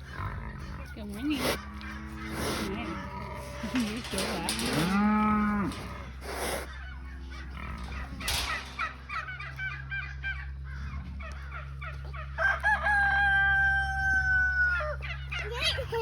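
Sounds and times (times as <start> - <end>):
steady low hum: 0.0 - 12.4
chickens clucking: 0.0 - 16.0
rooster crowing: 12.2 - 15.2.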